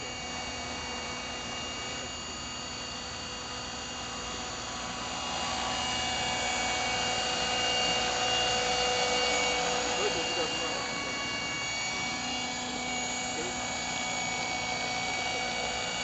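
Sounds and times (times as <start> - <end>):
rc helicopter motor whine: 0.0 - 16.0.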